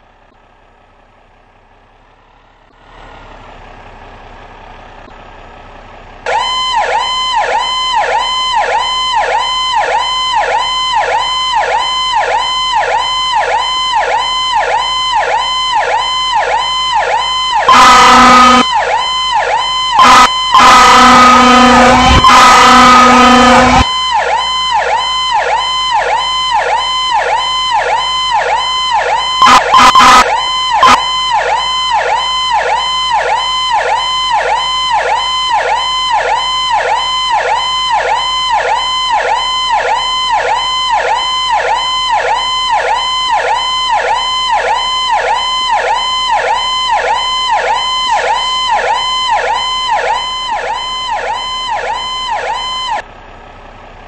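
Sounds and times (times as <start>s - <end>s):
electronic siren cycling: 6.3s - 53.0s
fire engine horn blasts: 16.6s - 25.2s, 28.2s - 53.0s.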